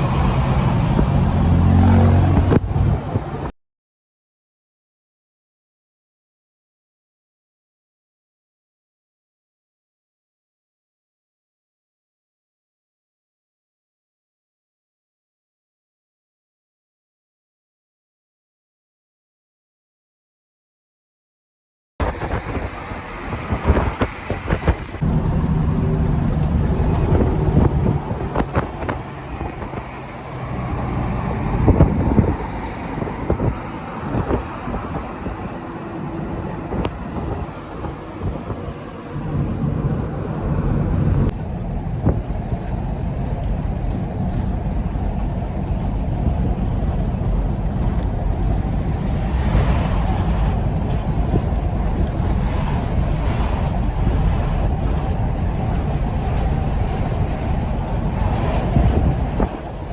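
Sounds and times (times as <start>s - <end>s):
truck engine rumbling: 0.0s - 3.5s, 22.0s - 59.9s.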